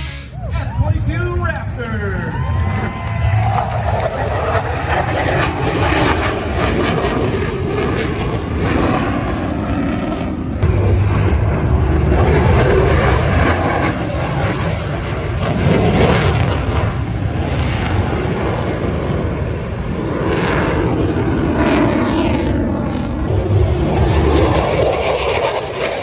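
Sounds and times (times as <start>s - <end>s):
aircraft engine overhead: 0.0s - 26.0s.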